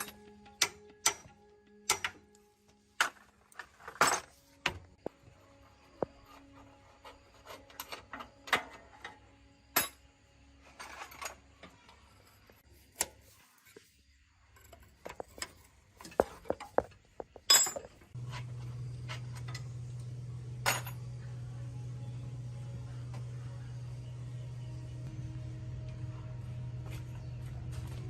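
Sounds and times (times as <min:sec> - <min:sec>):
metal tools clinking: 0:14.6 - 0:19.8, 0:20.6 - 0:21.0
low machine hum: 0:17.5 - 0:28.0.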